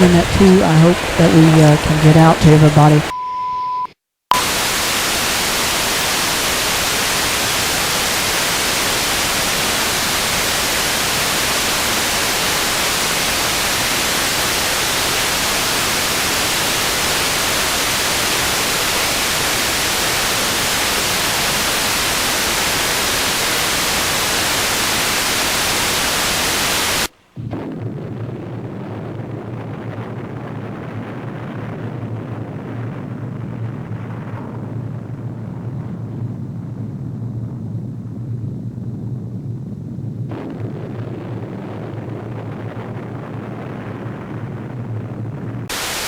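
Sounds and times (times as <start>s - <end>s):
static hiss: 0.0s - 3.1s, 4.4s - 27.8s, 45.7s - 46.0s.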